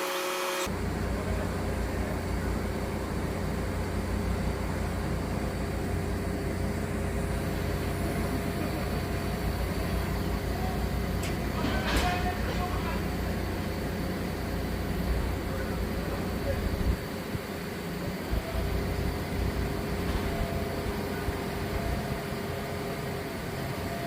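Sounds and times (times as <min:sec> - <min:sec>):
diesel engine rumbling: 0:00.7 - 0:24.0.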